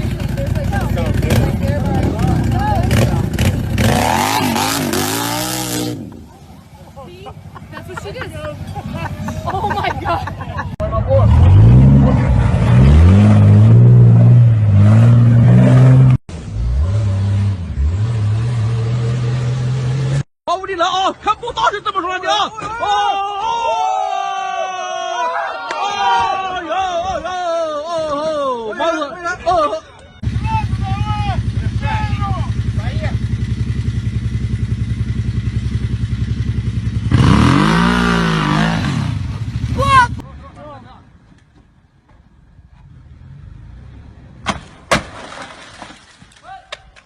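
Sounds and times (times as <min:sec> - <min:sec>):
engine running with shifting revs: 0:00.0 - 0:06.4
off-road vehicle engine revving: 0:00.0 - 0:20.3, 0:30.2 - 0:40.3.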